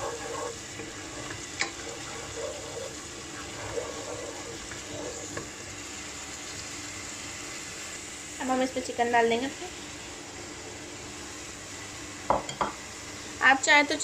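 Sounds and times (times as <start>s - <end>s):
wooden spatula stirring: 0.0s - 5.8s
paste sizzling in hot oil: 0.0s - 14.0s.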